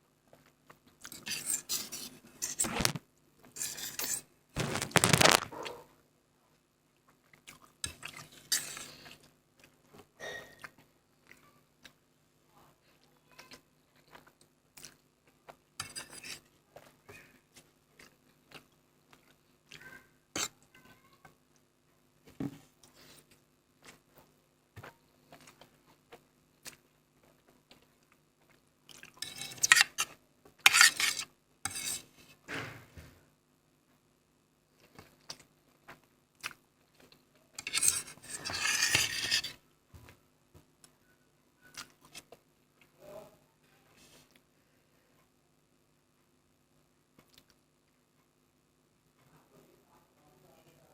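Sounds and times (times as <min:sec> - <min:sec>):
noisy eating: 0:06.5 - 0:32.2
person chewing noodles: 0:07.0 - 0:09.9.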